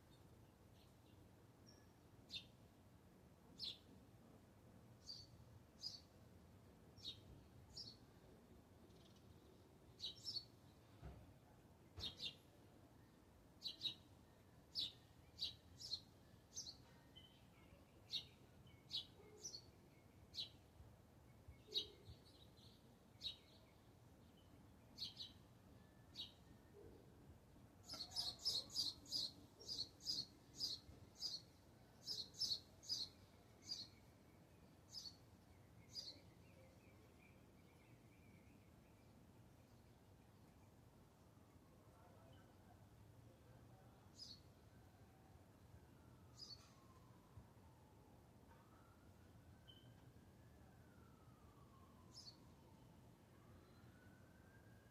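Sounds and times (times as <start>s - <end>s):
small birds chirping: 5.0s - 6.2s, 8.8s - 11.0s, 11.9s - 12.6s, 13.6s - 14.1s, 14.7s - 26.5s, 27.8s - 40.8s.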